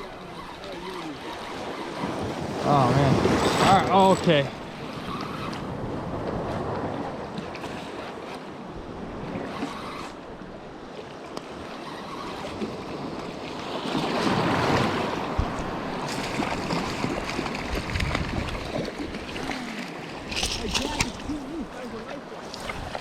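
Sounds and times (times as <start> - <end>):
ocean surf washing: 0.0 - 23.0
wind buffeting microphone: 14.0 - 19.5.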